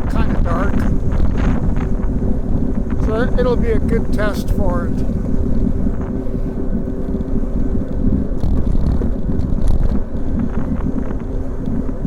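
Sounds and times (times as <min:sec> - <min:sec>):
wind buffeting microphone: 0:00.0 - 0:12.0
bicycle rattles: 0:05.0 - 0:12.0.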